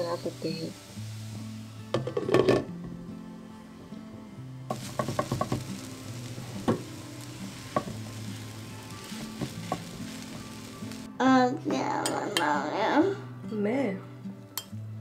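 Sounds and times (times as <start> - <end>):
food sizzling in a pan: 0.0 - 3.0, 4.7 - 13.2
spatula tapping a pan: 4.7 - 8.4, 9.0 - 10.5.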